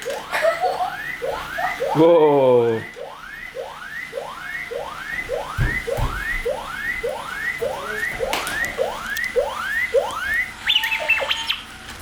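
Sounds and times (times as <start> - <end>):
electronic robot whoop: 6.4 - 11.7.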